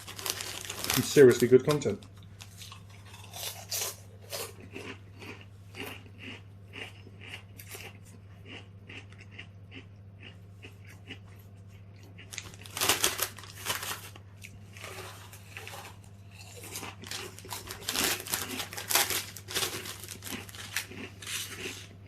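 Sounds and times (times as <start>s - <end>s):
crisp packet crinkling: 0.0s - 2.8s, 12.2s - 16.0s, 16.6s - 21.9s.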